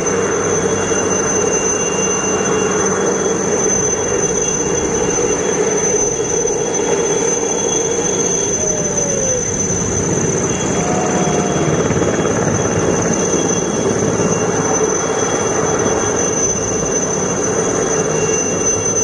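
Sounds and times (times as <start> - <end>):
helicopter engine and rotor noise: 0.0 - 19.0
high-pitched whine: 0.0 - 19.0.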